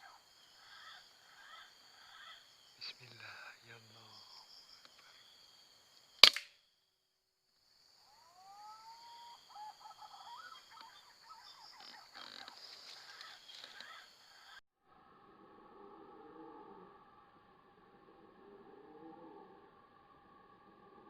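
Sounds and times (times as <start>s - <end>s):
insects buzzing: 0.0s - 14.6s
air rifle shot: 6.2s - 6.5s
whistled bird calls: 8.2s - 14.6s.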